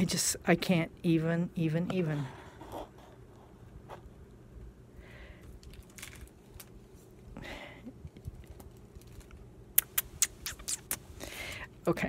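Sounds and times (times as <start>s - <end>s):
soft hissing: 9.8s - 11.6s.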